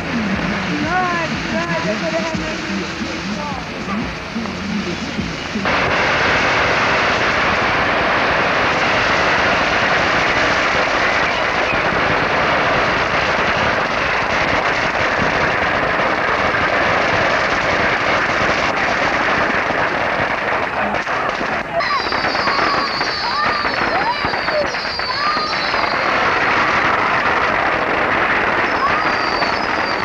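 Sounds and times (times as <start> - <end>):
fireworks hissing rush: 0.0 - 30.0.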